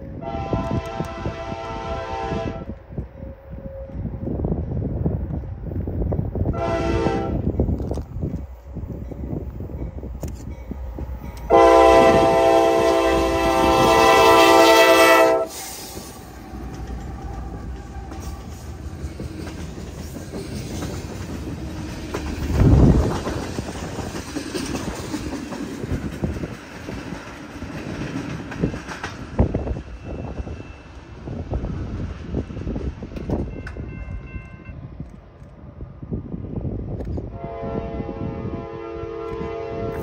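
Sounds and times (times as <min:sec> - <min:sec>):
clickety-clack of rail cars: 0:00.0 - 0:40.0
train wheels rumbling on rails: 0:00.0 - 0:40.0
locomotive air horn blast: 0:00.2 - 0:02.7, 0:06.5 - 0:07.5, 0:11.5 - 0:16.2, 0:37.3 - 0:40.0.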